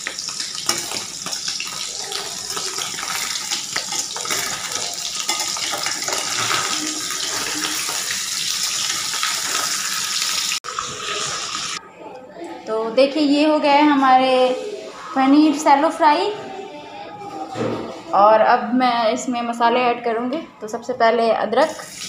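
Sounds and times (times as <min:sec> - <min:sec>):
cheese sizzling in hot oil: 0:00.0 - 0:11.8.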